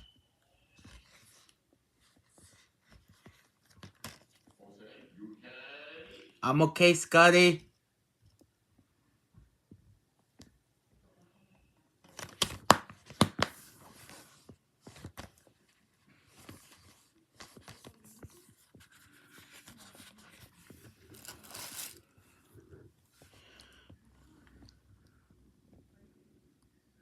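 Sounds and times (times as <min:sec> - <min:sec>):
packaging torn and crinkled: 0:21.0 - 0:22.0.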